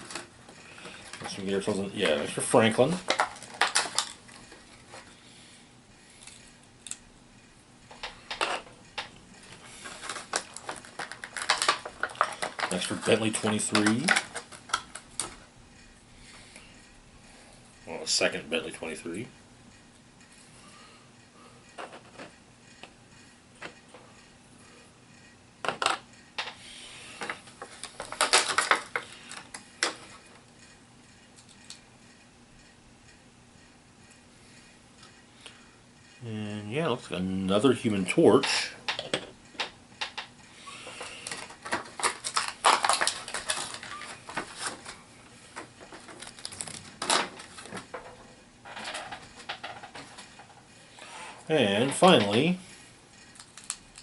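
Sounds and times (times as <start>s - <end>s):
packaging crinkle: 9.6s - 15.3s, 40.9s - 45.0s, 45.9s - 48.0s.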